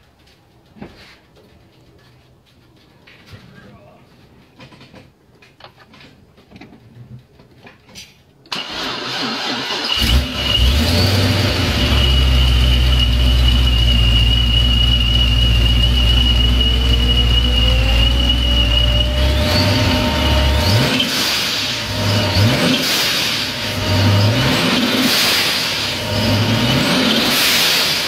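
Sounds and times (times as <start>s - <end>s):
car engine starting and idling: 8.5s - 28.0s
high whine: 11.2s - 28.0s.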